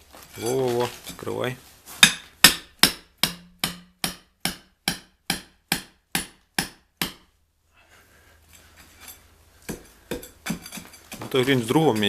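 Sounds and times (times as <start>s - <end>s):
hammer striking brick: 2.0s - 7.3s, 9.7s - 11.2s.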